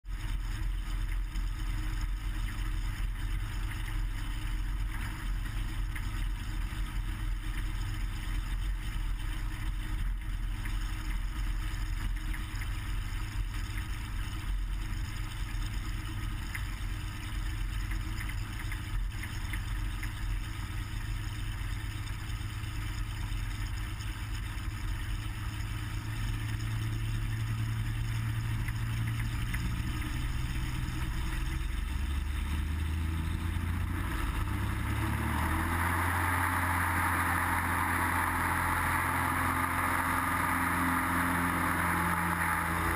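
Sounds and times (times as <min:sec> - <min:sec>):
propeller aircraft engine drone: 0:00.1 - 0:42.9.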